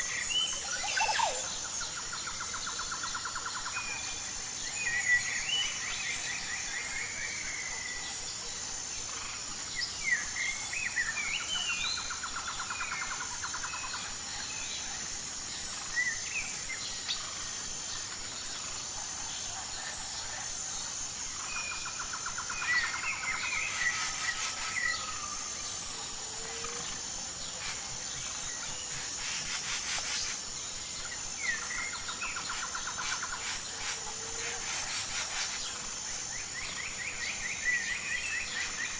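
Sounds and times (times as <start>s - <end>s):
insects droning: 0.0s - 38.9s
birds singing and chirping: 21.4s - 38.9s
rapid bird trill: 21.5s - 25.9s.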